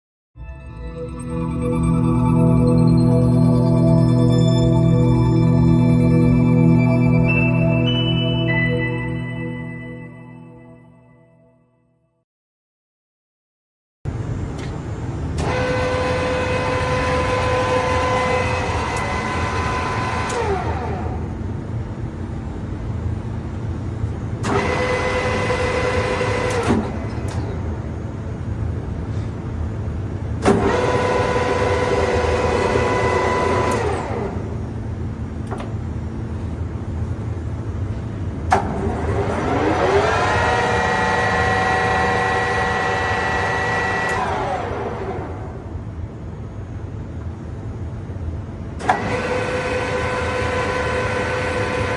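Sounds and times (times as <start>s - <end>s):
lathe motor hum: 38.8s - 45.4s.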